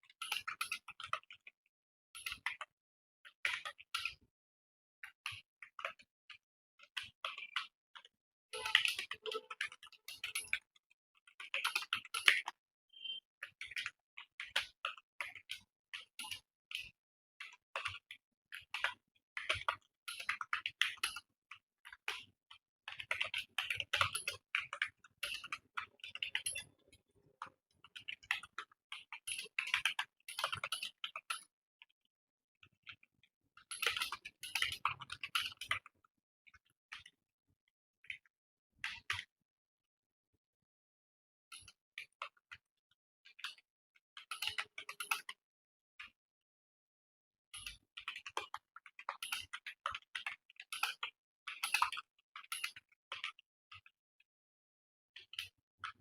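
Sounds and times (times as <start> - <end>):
keyboard typing clicks: 8.6 - 9.6.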